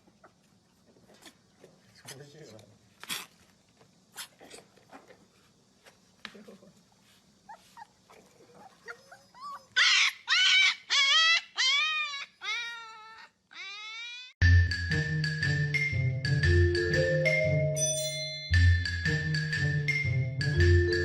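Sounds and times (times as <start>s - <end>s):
puppy whining and yelping: 7.5s - 14.3s.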